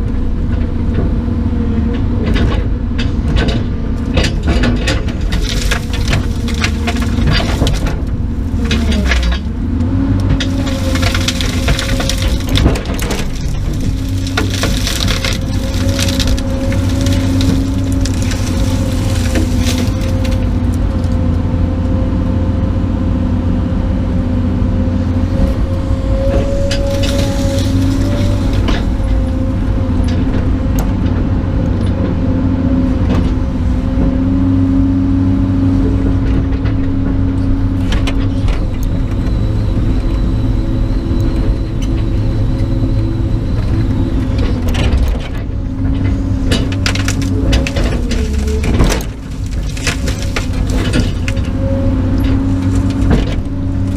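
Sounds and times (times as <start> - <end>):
heavy diesel engine under load: 0.0 - 53.9
branches cracking and snapping: 4.1 - 21.4, 25.3 - 29.9, 43.0 - 53.9.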